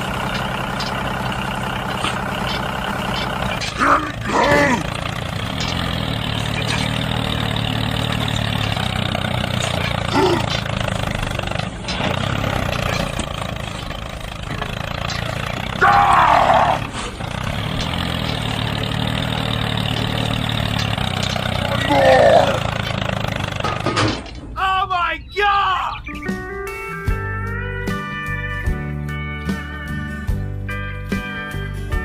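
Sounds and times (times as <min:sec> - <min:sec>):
small tractor engine hum: 0:00.0 - 0:32.0
bending voice-like call: 0:21.7 - 0:22.7.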